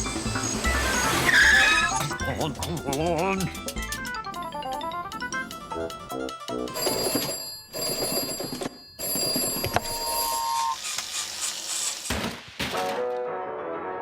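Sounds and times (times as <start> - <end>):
comic cartoon music: 0.0 - 6.8
shrill ringing: 0.3 - 2.3, 9.8 - 10.8
cartoon sound effects: 0.4 - 3.3.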